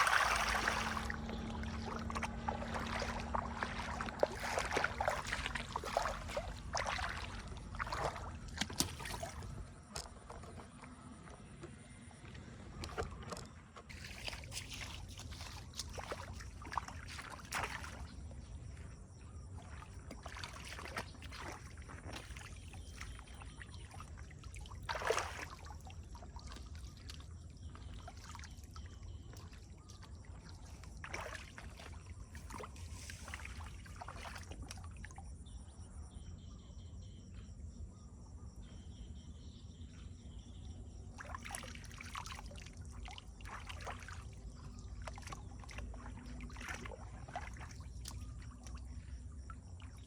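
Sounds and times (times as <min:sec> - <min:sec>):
floodwater splashing: 0:00.0 - 0:11.4, 0:12.2 - 0:35.2, 0:41.2 - 0:50.0
steady low rumble: 0:00.0 - 0:12.9.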